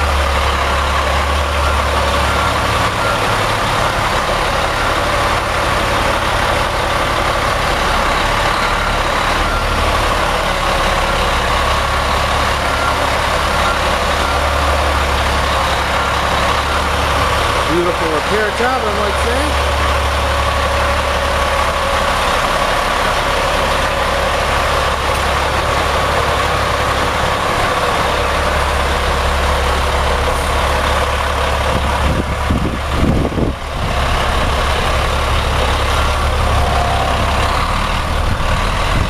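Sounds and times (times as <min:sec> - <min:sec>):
diesel truck engine idling: 0:00.0 - 0:39.0.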